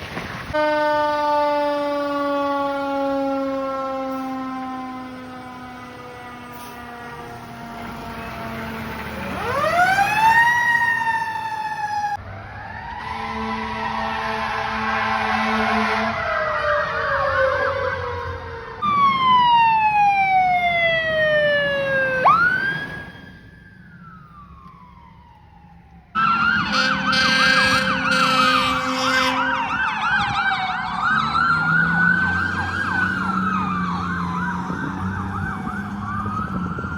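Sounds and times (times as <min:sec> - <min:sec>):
blaring horn: 0:00.5 - 0:08.7, 0:13.0 - 0:18.3, 0:26.2 - 0:30.3
fire truck siren wailing: 0:00.5 - 0:36.9
siren fast yelp: 0:09.4 - 0:25.3, 0:26.1 - 0:36.9.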